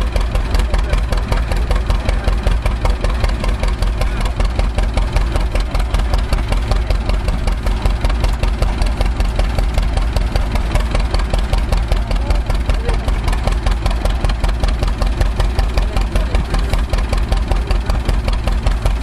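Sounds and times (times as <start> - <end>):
farm engine idling: 0.0 - 19.0.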